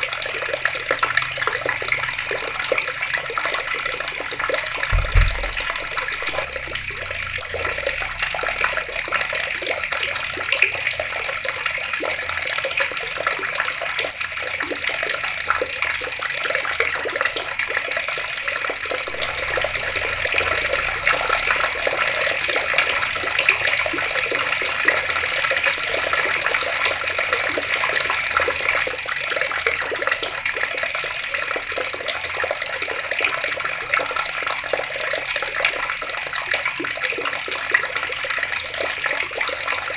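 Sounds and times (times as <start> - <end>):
water running from tap splashing: 0.0 - 39.9
low thump: 4.9 - 8.2.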